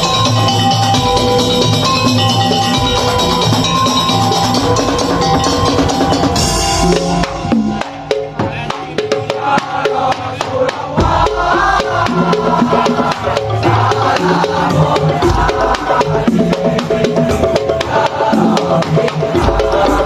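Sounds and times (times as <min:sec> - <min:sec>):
sustained melodic tones: 0:00.0 - 0:09.0
drums: 0:00.0 - 0:20.0.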